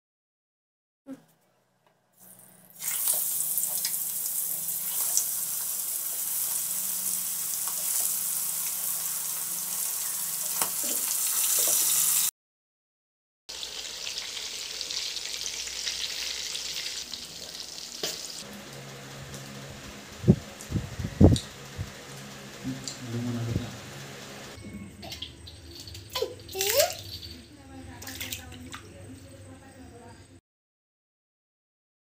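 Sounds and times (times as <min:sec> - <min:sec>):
fish frying in wok: 0:02.2 - 0:12.3, 0:13.5 - 0:23.2, 0:23.8 - 0:27.2.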